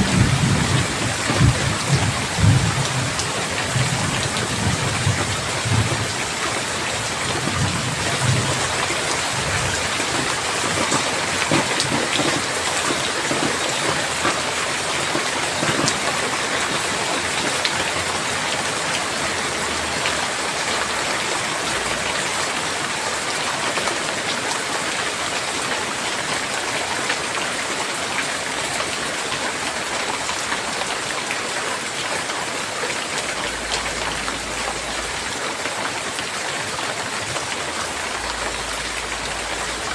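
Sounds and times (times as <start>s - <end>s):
low thunder rumble: 0.0s - 14.4s
steady rain: 0.0s - 39.9s.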